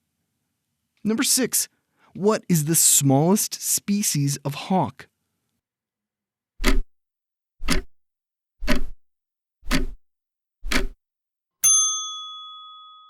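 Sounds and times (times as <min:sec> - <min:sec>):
clock ticks: 0:06.6 - 0:06.9, 0:07.6 - 0:07.9, 0:08.6 - 0:09.0, 0:09.6 - 0:10.0, 0:10.6 - 0:11.0
bell-like ding: 0:11.6 - 0:13.0.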